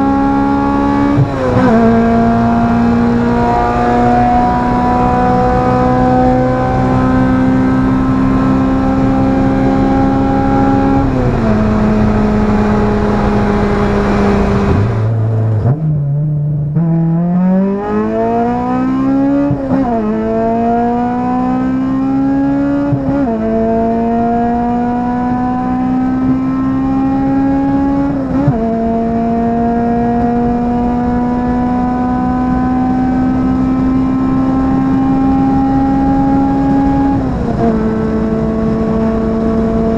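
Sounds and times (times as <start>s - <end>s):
car engine revving through gears: 0.0s - 39.9s.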